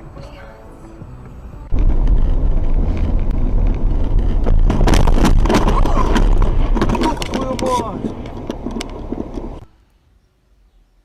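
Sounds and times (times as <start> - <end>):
car rumble: 0.0 - 9.8
sharp clattering knocks: 1.8 - 9.6.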